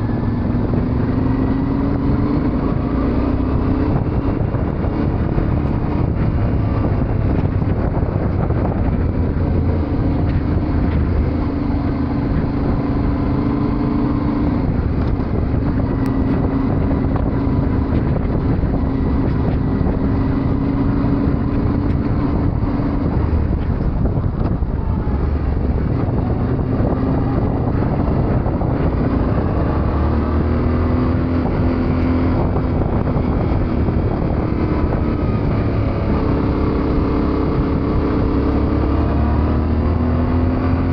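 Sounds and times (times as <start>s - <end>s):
motorcycle engine revving: 0.0s - 40.9s
wind and road noise: 0.0s - 40.9s.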